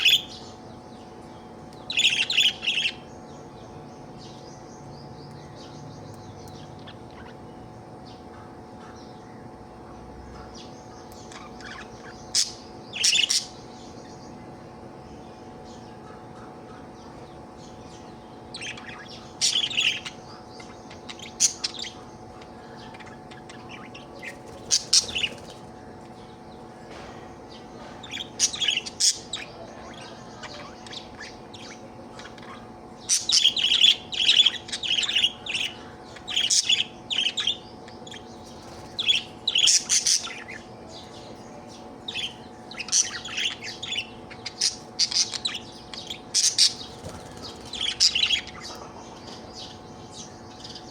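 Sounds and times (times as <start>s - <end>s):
budgerigar chirping and chattering: 28.2s - 50.9s.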